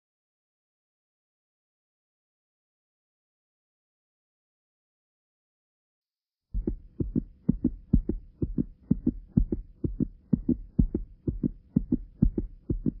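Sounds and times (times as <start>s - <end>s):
heartbeat thumps: 6.6s - 13.0s.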